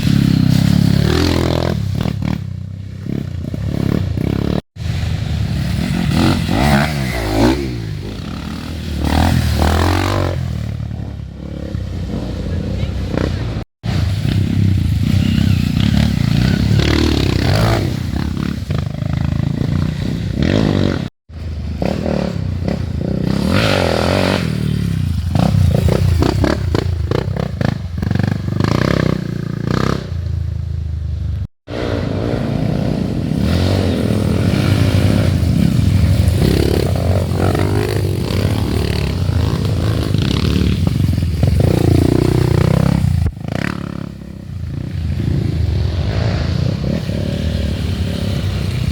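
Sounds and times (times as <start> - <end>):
dirt bike engines revving: 0.0 - 48.9.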